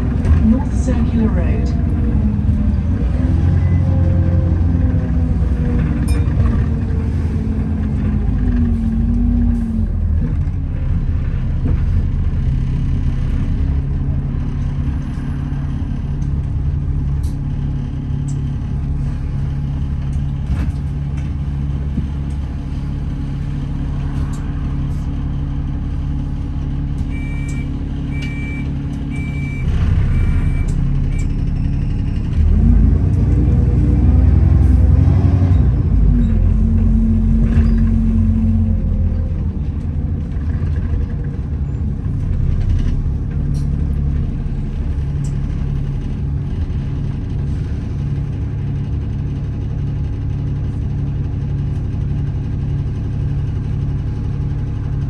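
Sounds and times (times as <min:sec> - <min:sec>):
bus engine idling: 0:00.0 - 0:55.0
short high beeps: 0:27.1 - 0:30.8.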